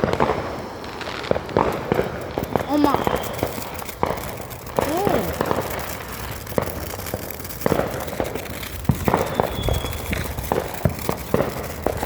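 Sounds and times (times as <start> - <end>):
firework whistle: 0.0 - 12.0
fireworks bangs and cracks: 0.0 - 12.0.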